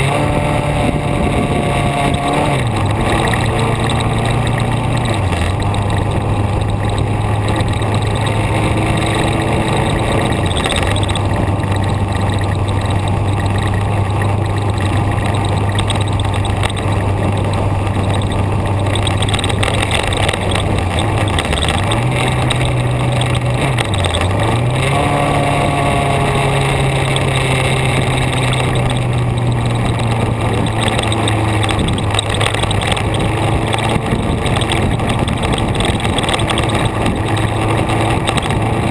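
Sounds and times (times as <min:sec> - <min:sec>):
road and wind noise: 0:00.0 - 0:38.9
vehicle engine running: 0:00.0 - 0:38.9.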